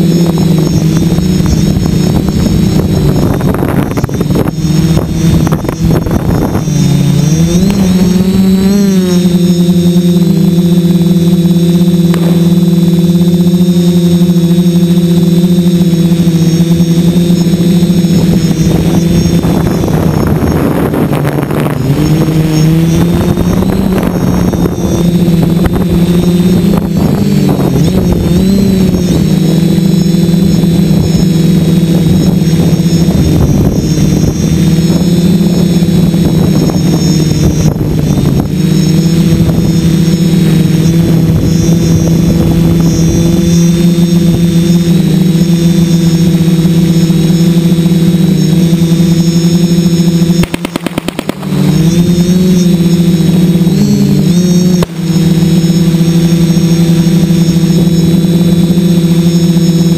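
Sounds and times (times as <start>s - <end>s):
drone propellers whining: 0.0s - 59.9s.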